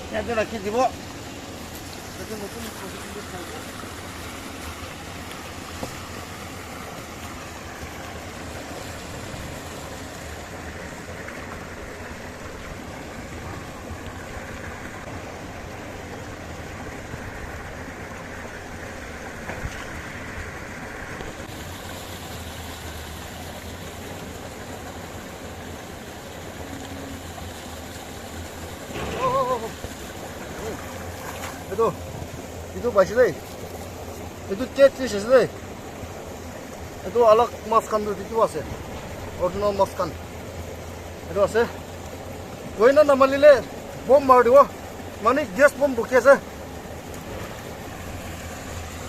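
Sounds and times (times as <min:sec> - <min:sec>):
stream water running: 0:00.0 - 0:49.0
person speaking: 0:29.0 - 0:29.8.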